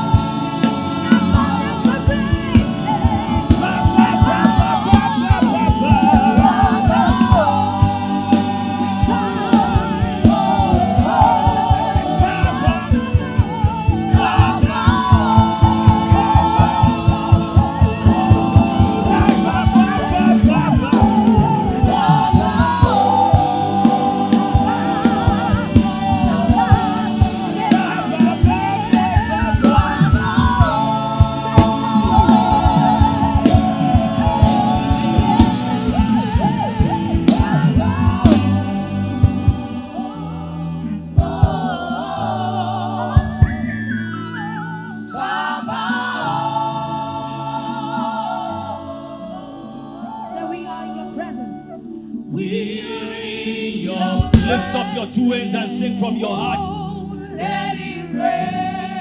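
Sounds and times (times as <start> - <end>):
band with fast drum beat: 0.0 - 40.2, 54.2 - 54.9
choir singing gospel: 0.0 - 59.0.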